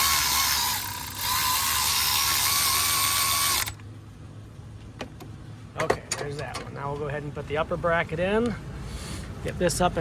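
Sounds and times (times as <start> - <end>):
power tool whirring: 0.0 - 3.8.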